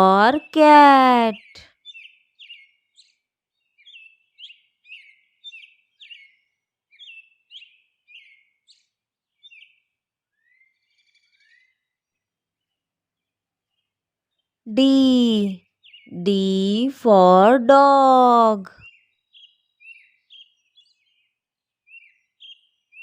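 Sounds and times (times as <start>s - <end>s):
small bird chirping: 1.8s - 11.7s.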